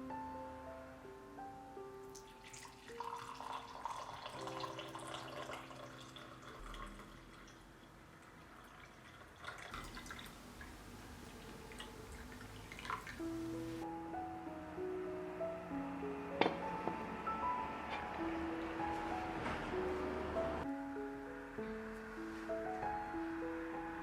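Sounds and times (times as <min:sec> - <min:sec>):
soft piano music: 0:00.0 - 0:08.9, 0:09.7 - 0:24.0
water running and dripping: 0:02.1 - 0:13.8.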